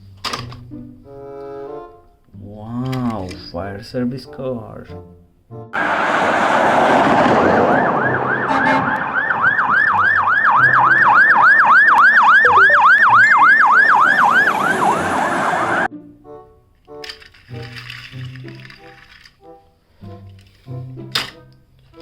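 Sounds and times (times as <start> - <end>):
siren yelping: 5.8 - 15.9.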